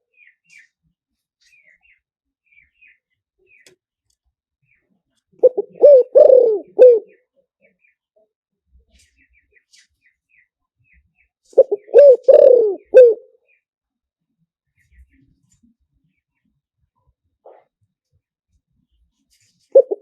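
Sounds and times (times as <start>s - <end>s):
dove cooing: 5.4s - 7.2s, 11.6s - 13.3s, 19.7s - 20.0s.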